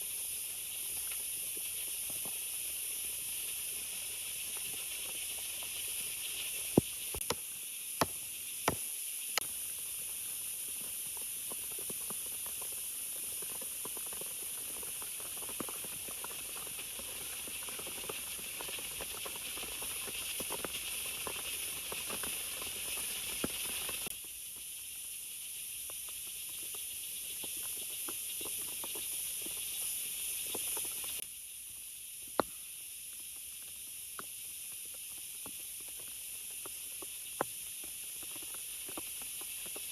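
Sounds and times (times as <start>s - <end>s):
heavy rain in forest: 0.0s - 24.2s.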